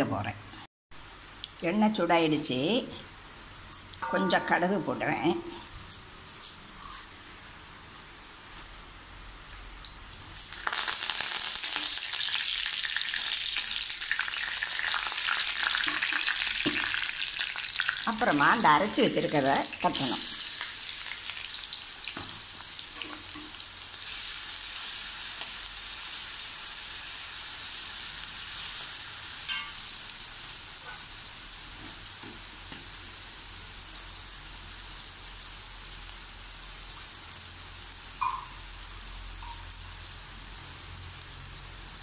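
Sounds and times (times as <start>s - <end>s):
paste sizzling in hot oil: 10.3s - 42.0s.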